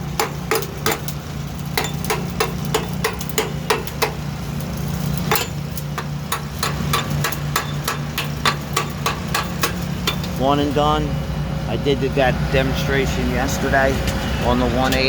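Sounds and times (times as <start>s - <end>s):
hammer striking steel: 0.0s - 4.2s, 5.2s - 10.4s
engine humming: 0.0s - 15.0s.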